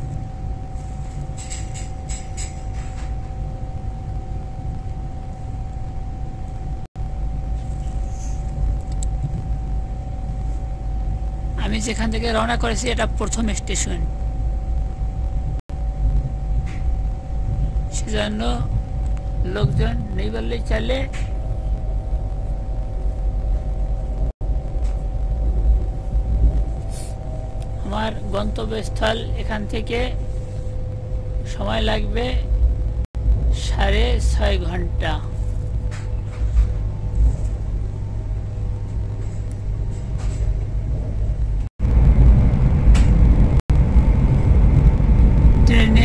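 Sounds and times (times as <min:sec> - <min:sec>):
train rumble inside carriage: 0:00.0 - 0:14.1, 0:15.2 - 0:46.0
train rumbling inside passenger car: 0:00.8 - 0:03.4, 0:17.4 - 0:22.0, 0:31.4 - 0:46.0.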